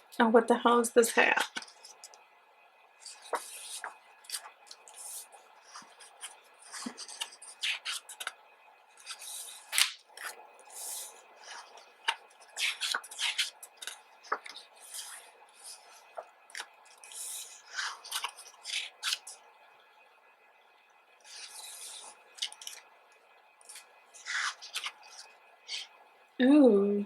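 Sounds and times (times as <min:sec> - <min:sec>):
pages turning: 0:03.0 - 0:08.4, 0:09.0 - 0:19.3, 0:21.3 - 0:22.8, 0:23.7 - 0:25.9.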